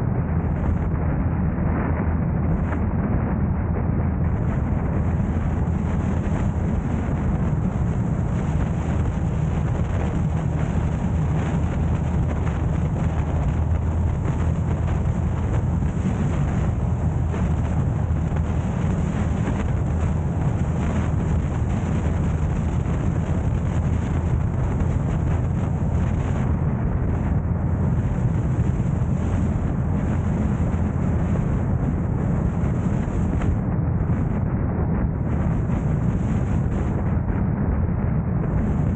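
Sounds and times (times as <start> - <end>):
car road and wind noise: 0.0 - 38.9.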